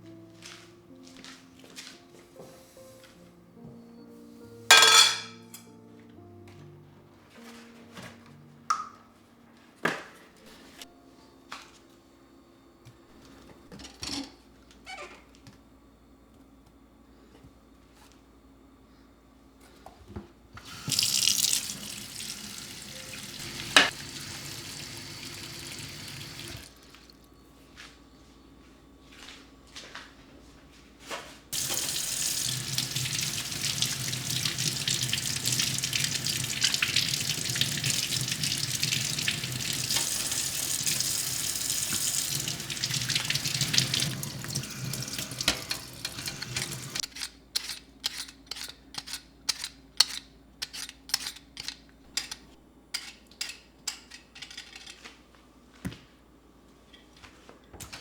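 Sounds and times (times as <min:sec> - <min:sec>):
tap running into sink: 0:20.6 - 0:26.7, 0:31.6 - 0:47.0.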